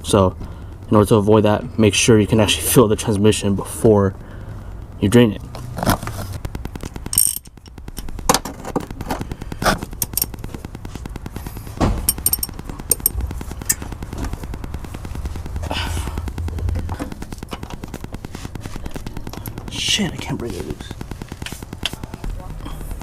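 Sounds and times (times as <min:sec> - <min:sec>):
wrench clicking: 0:07.1 - 0:08.1, 0:09.8 - 0:10.3, 0:12.1 - 0:13.8.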